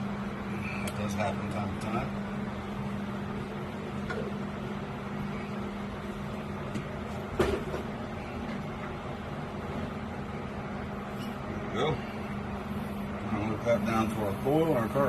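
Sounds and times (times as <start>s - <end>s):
air compressor humming: 0.0s - 15.0s.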